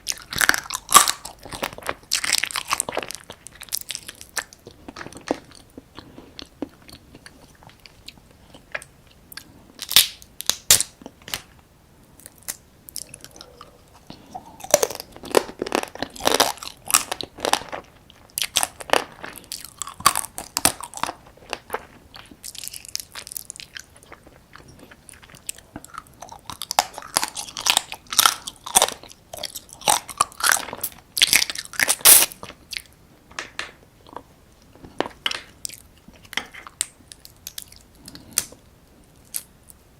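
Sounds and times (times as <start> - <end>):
crab shell cracking and crunching: 9.8 - 11.5, 14.3 - 24.4, 25.2 - 34.2.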